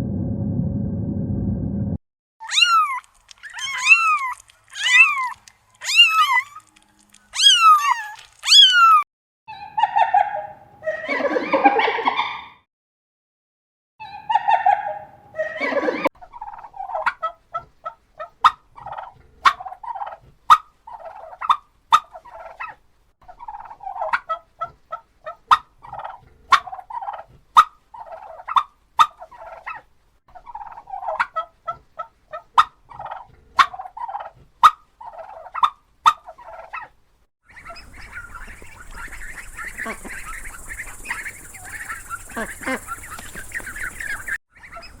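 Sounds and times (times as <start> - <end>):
poultry calling: 2.4 - 9.0, 37.5 - 45.0.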